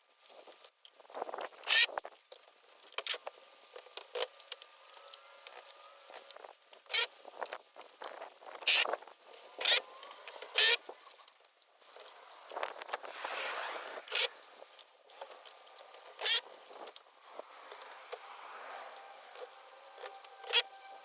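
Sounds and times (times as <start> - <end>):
loud rasping bursts: 8.7 - 21.0.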